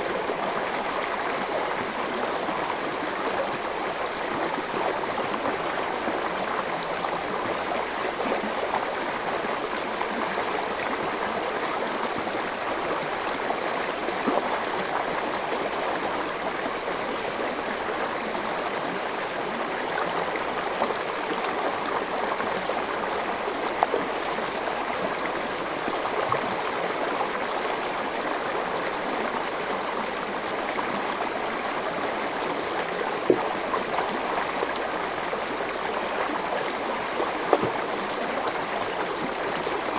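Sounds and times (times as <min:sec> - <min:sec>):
stream babbling: 0:00.0 - 0:39.9
water splashes: 0:37.1 - 0:39.9.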